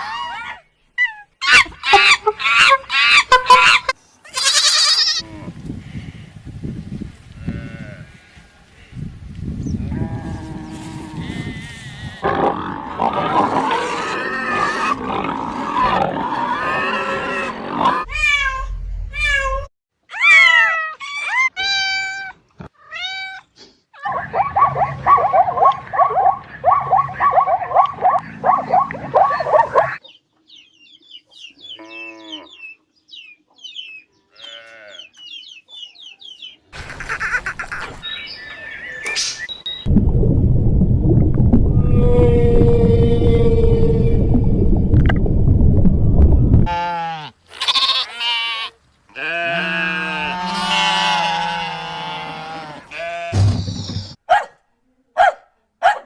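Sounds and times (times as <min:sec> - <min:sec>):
animal calls: 0:00.0 - 0:05.3, 0:24.0 - 0:30.0, 0:36.8 - 0:39.6.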